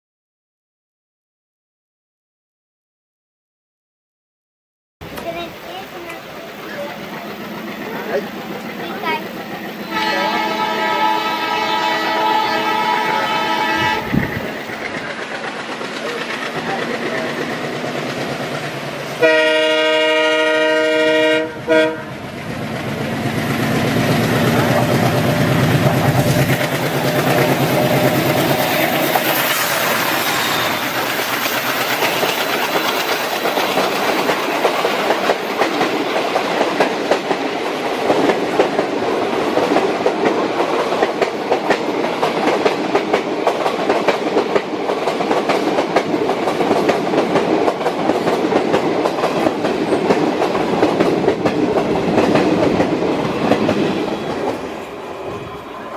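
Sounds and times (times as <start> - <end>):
diesel locomotive chugging: 5.0 - 36.8
train horn blast: 9.8 - 14.2, 19.2 - 22.2
wheels clicking over rail joints: 14.4 - 19.2.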